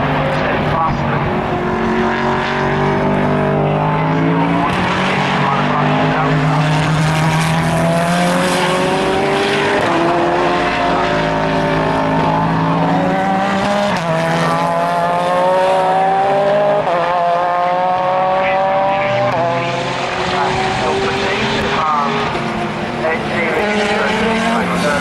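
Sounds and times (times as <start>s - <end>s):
race car engine accelerating: 0.0s - 25.0s.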